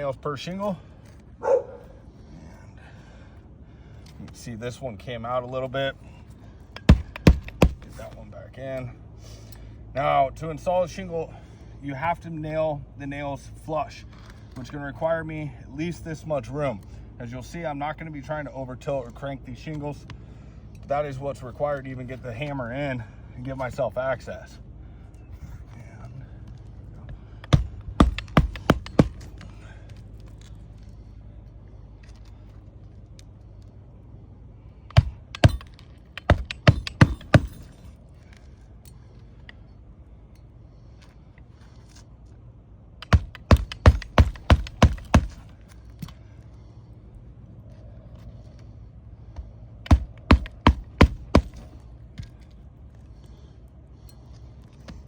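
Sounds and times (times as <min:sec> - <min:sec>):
hammer driving nails into shingles: 0:06.8 - 0:08.0, 0:27.4 - 0:29.6, 0:34.9 - 0:37.9, 0:43.0 - 0:46.1, 0:49.8 - 0:51.8.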